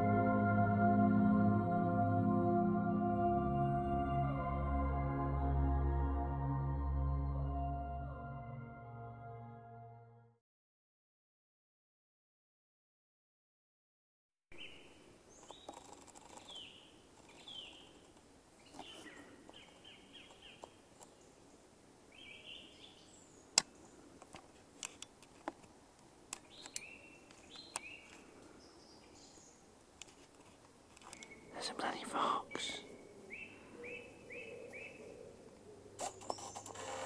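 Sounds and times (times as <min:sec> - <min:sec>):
small birds calling: 0:14.6 - 0:24.2, 0:26.4 - 0:29.7, 0:31.0 - 0:37.0
faint steady hiss: 0:14.6 - 0:34.4
sharp clicks: 0:26.3 - 0:27.9.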